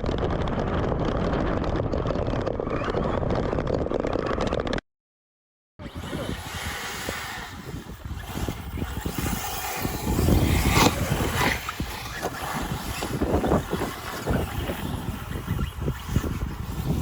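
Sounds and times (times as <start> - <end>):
radio-controlled car motors: 5.8 - 17.0.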